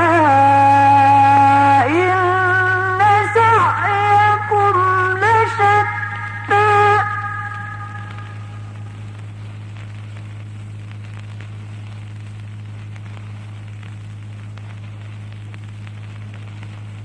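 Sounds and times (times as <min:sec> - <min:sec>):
faint crackle: 0:00.0 - 0:17.0
sound system hum and hiss: 0:00.0 - 0:17.0
reciter's held note echoing: 0:04.0 - 0:08.9.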